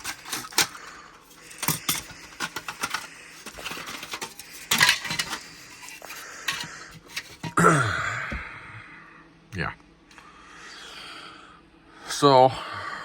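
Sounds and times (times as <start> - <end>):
plastic parts clicking and rattling: 0.0 - 7.6.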